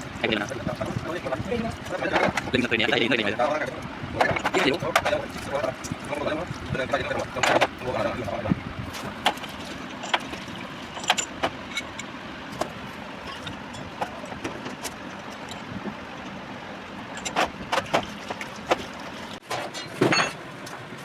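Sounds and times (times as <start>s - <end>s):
tools and metal parts clicking: 10.9s - 12.1s.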